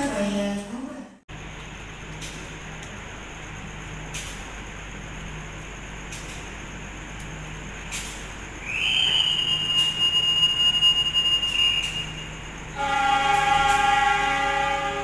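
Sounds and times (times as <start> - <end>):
whistle long steady note: 8.6 - 15.0.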